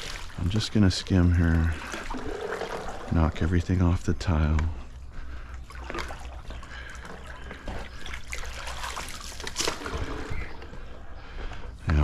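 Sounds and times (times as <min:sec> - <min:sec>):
skimmer net swishing through water: 0:00.0 - 0:03.4, 0:05.6 - 0:10.6
water splashing and trickling: 0:00.0 - 0:10.9.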